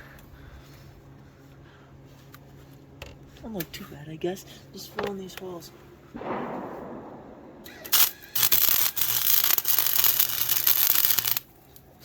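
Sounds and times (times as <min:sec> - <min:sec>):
low electrical hum: 0:00.0 - 0:12.0
welder arc crackling: 0:06.7 - 0:11.5.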